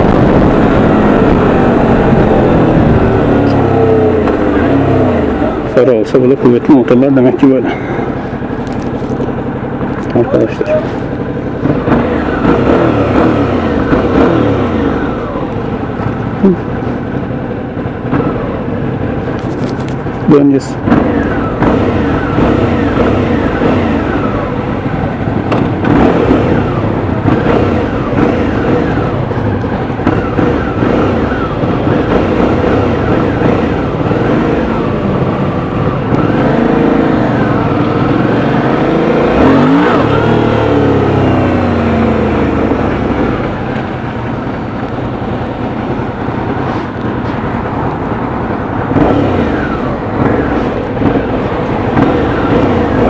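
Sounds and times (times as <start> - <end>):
wind rushing: 0.0 - 5.6
motorcycle engine accelerating: 0.0 - 53.0.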